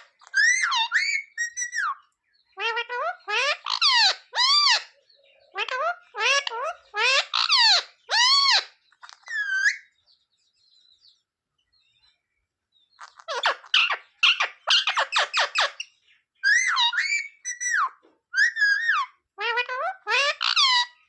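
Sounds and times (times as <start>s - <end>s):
parrot calling and chattering: 0.0s - 9.9s, 13.0s - 21.0s.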